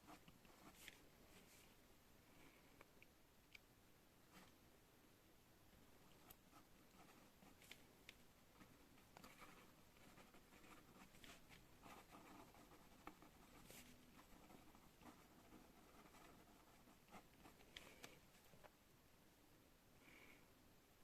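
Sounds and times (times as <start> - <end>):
pen scratching on paper: 8.6 - 17.7.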